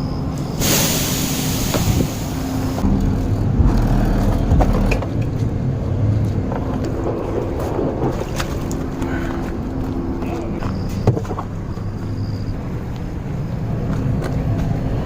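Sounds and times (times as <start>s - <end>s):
loud hiss: 0.5s - 2.8s
large fire rumbling and crackling: 0.7s - 10.8s.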